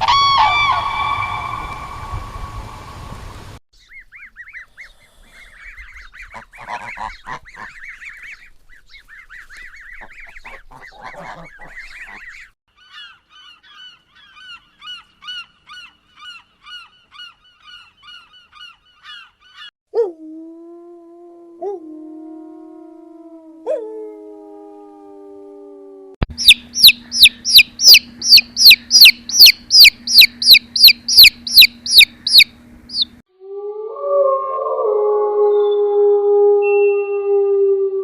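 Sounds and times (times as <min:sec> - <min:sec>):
birds chattering: 0:03.8 - 0:19.7, 0:26.3 - 0:33.2
birds honking: 0:05.6 - 0:08.5, 0:09.1 - 0:19.7, 0:26.4 - 0:33.1
low animal howl: 0:20.0 - 0:26.2, 0:33.4 - 0:38.0.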